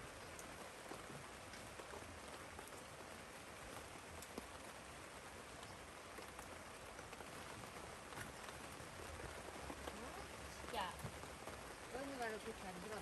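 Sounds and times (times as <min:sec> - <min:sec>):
faint steady rain: 0:00.0 - 0:13.0
raindrops ticking on a surface: 0:00.0 - 0:13.0.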